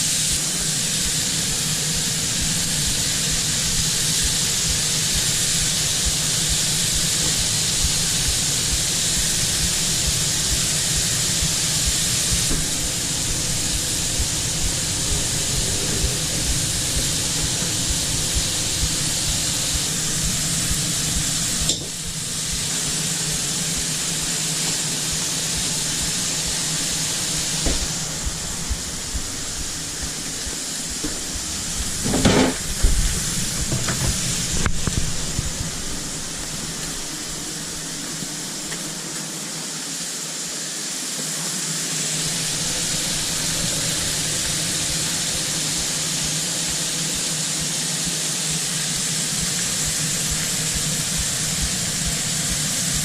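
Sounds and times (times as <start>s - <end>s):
low hum: 0.0s - 38.6s
food sizzling: 0.0s - 53.0s.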